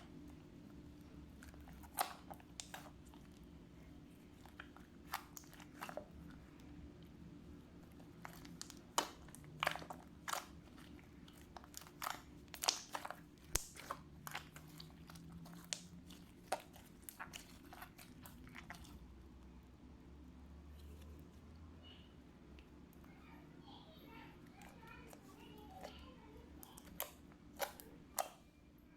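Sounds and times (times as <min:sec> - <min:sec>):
slime squishing sticky pops: 0:01.3 - 0:03.4, 0:08.0 - 0:19.0, 0:26.6 - 0:28.4.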